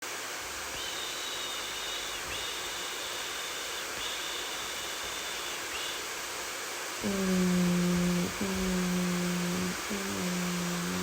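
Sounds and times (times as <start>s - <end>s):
hair dryer blowing: 0.2s - 11.0s
thin high whine: 0.4s - 11.0s.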